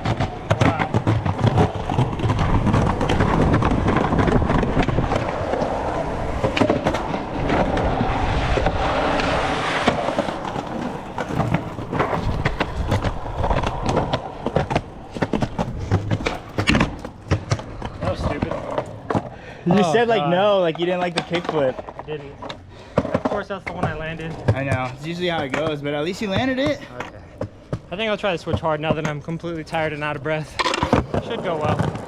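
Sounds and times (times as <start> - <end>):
skateboard deck clacking: 0.0 - 19.8, 20.9 - 32.0
skateboard wheels rolling: 0.0 - 32.0.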